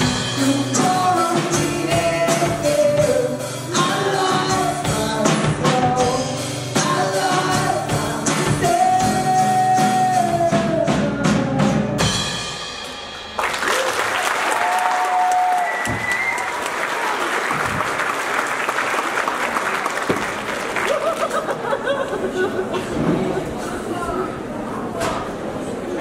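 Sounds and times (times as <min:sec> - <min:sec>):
rock band playing: 0:00.0 - 0:13.8
audience whoops: 0:13.4 - 0:18.1
audience applause and cheering: 0:13.4 - 0:22.4.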